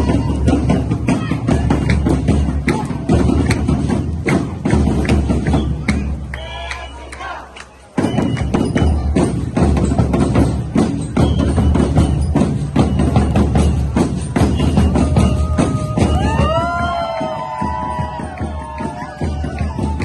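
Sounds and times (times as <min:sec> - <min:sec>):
drum-heavy festival music: 0:00.0 - 0:20.0.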